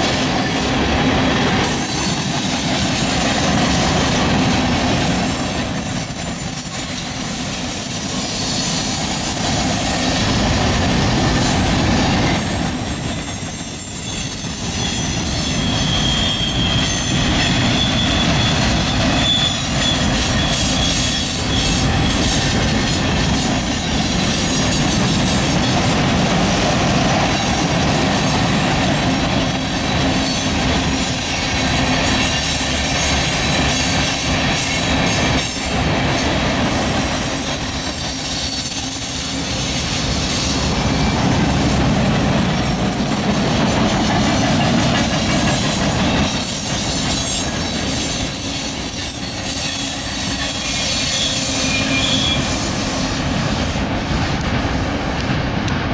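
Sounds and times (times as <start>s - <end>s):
steel wheels rumbling on rail: 0.0s - 55.9s
high-pitched wheel squeals: 5.5s - 10.2s, 12.2s - 25.8s, 37.0s - 41.5s, 46.0s - 53.3s
low wheel squeal: 12.2s - 23.1s, 46.0s - 53.2s.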